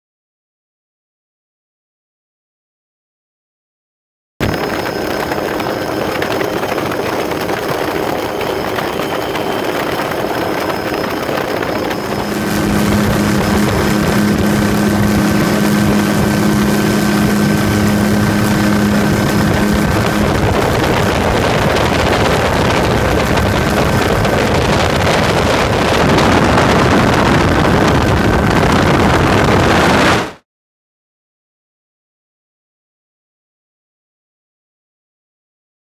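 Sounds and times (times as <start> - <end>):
helicopter rotor drone: 4.4 - 30.2.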